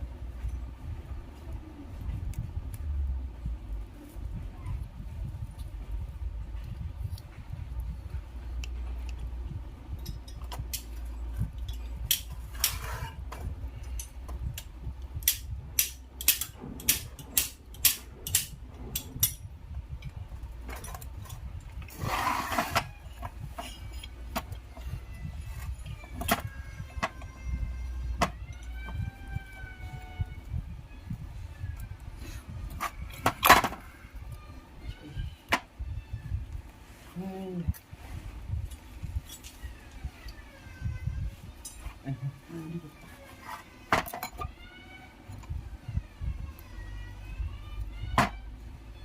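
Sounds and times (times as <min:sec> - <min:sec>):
low background rumble: 0:00.0 - 0:49.0
metal tools clinking: 0:38.7 - 0:39.8, 0:41.6 - 0:42.0.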